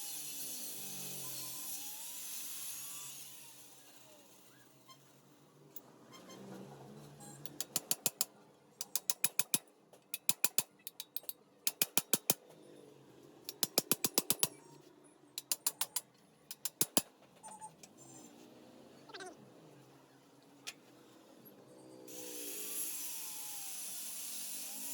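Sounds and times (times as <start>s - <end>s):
sliding squeak: 6.0s - 7.4s, 17.4s - 18.5s.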